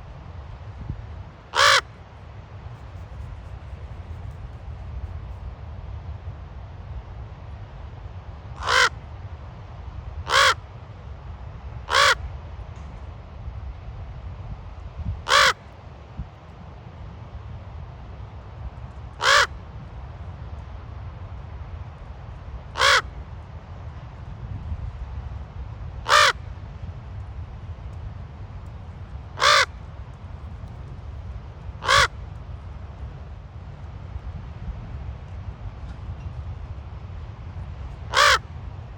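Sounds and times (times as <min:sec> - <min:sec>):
steady low rumble: 0:00.0 - 0:10.2, 0:11.0 - 0:38.9
raven cawing: 0:01.5 - 0:01.9, 0:08.6 - 0:08.9, 0:10.3 - 0:10.6, 0:11.9 - 0:12.2, 0:15.3 - 0:15.6, 0:19.2 - 0:19.6, 0:22.8 - 0:23.2, 0:26.0 - 0:26.4, 0:29.4 - 0:29.8, 0:31.8 - 0:32.2, 0:38.1 - 0:38.5
raven croaking: 0:01.6 - 0:01.9, 0:29.4 - 0:29.7, 0:31.8 - 0:32.2, 0:38.1 - 0:38.4.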